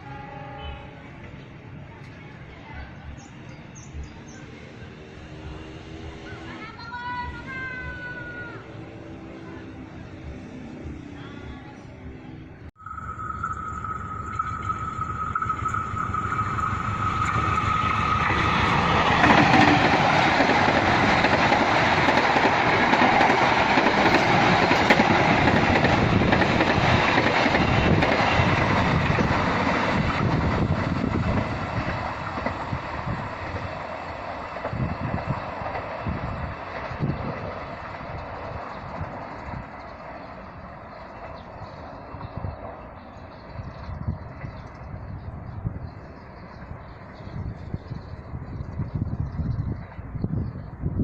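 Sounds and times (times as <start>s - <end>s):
steady high tone: 12.8s - 20.4s
train wheels rumbling on rails: 12.8s - 51.0s.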